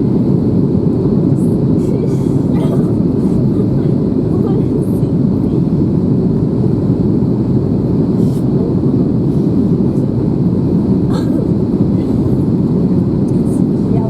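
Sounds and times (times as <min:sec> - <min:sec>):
aircraft cabin engine rumble: 0:00.0 - 0:14.0.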